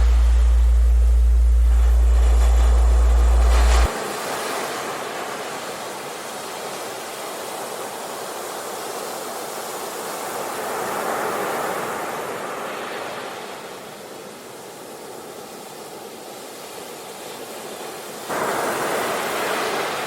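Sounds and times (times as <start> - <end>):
ocean waves breaking: 0.0 - 8.4, 18.3 - 20.0.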